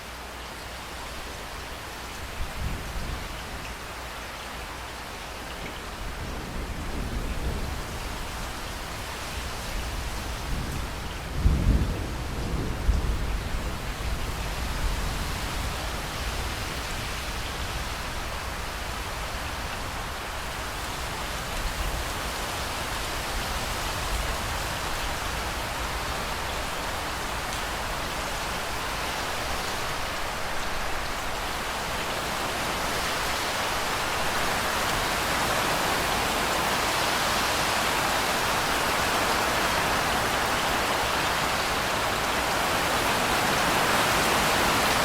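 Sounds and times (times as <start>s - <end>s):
steady rain falling: 0.0s - 45.0s
thunder rumbling: 10.4s - 15.1s.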